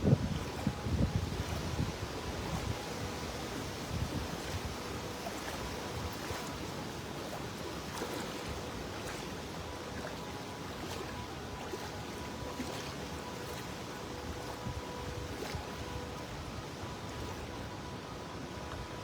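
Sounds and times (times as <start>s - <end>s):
hurricane wind rushing: 0.0s - 7.3s
faint steady tone: 0.0s - 19.0s
floodwater rushing: 0.0s - 19.0s
light water splashes: 0.0s - 19.0s.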